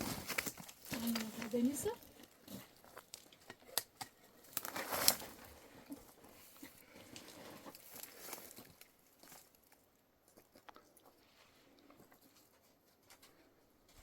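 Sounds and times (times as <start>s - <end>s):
rustling and crinkling: 0.0s - 14.0s.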